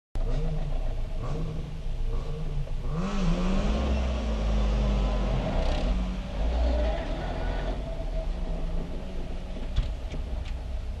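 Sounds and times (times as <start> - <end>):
car engine revving: 0.2 - 10.4.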